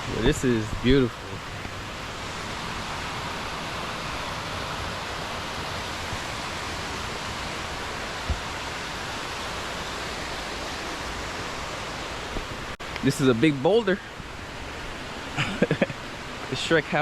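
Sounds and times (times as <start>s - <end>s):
creek water rushing over rocks: 0.0s - 17.0s.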